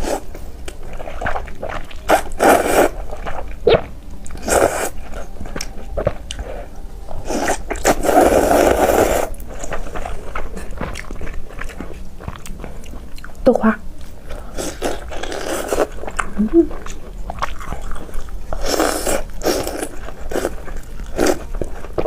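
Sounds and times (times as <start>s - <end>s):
chewing: 0.0s - 22.0s.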